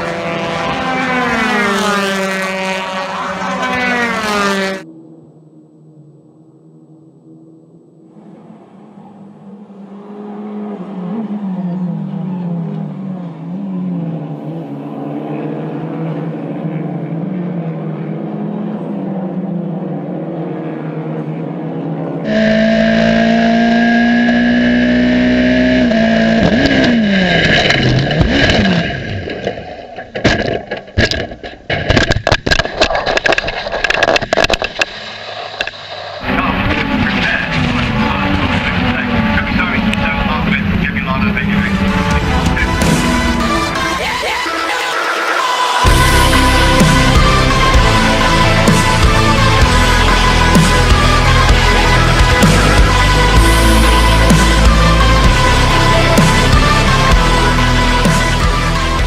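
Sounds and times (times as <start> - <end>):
high-revving engine: 0.0 - 29.6, 35.6 - 59.0
racing car engines: 0.0 - 30.4, 33.2 - 59.0.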